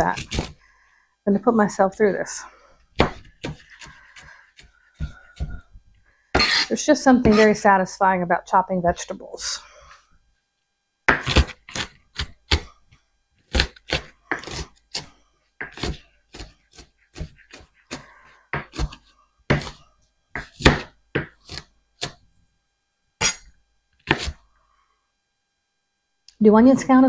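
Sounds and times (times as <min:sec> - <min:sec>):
knife chopping on cutting board: 0:00.0 - 0:00.6, 0:03.0 - 0:05.6, 0:06.4 - 0:06.7, 0:11.1 - 0:12.7, 0:13.5 - 0:18.0, 0:18.6 - 0:19.8, 0:20.4 - 0:22.2, 0:23.2 - 0:24.4.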